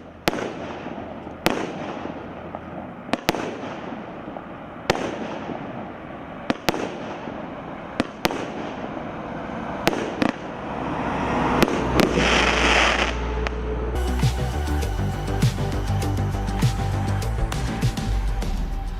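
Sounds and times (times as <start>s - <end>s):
firework bangs: 0.0s - 17.0s
firework crackling: 0.0s - 18.9s
music: 13.7s - 18.9s.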